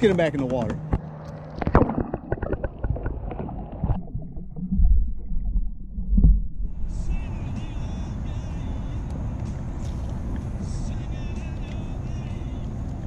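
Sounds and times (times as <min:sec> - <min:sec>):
knocks and clatter against hull: 0:00.0 - 0:03.5
water sloshing: 0:00.1 - 0:06.8.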